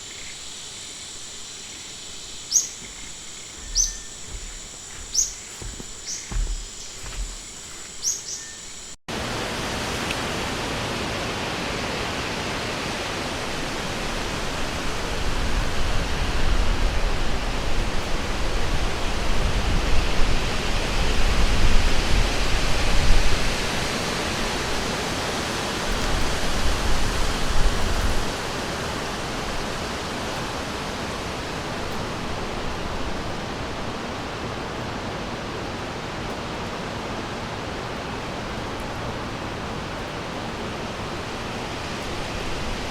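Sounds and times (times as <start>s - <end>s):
river water rushing: 9.1s - 17.8s.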